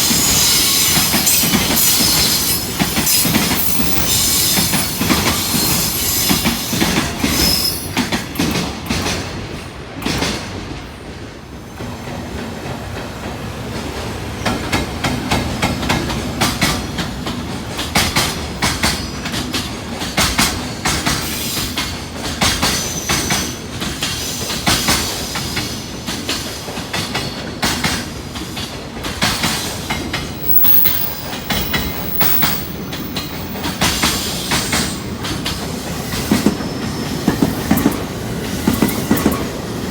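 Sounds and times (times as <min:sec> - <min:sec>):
high wheel squeals: 0:00.0 - 0:08.0, 0:30.3 - 0:35.2
train wheels clattering over joints: 0:13.8 - 0:39.7.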